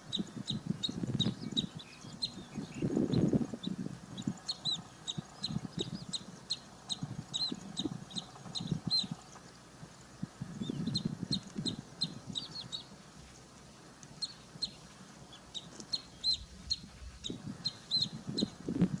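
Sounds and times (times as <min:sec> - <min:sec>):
birds chirping high: 0:00.0 - 0:19.0
low short bird calls: 0:14.2 - 0:18.6.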